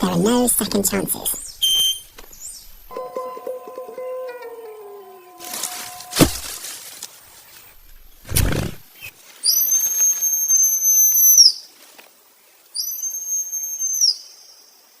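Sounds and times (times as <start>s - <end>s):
high whistle-like tones: 1.5s - 6.4s, 9.0s - 11.4s, 12.8s - 14.2s.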